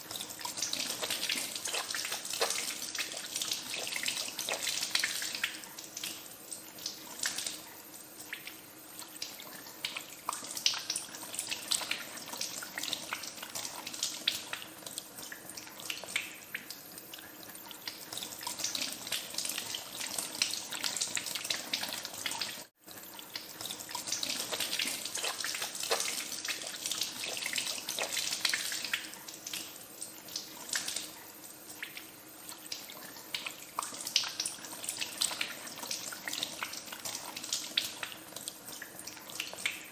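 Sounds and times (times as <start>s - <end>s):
hands washing with splashing: 0.0s - 6.2s, 23.6s - 29.7s.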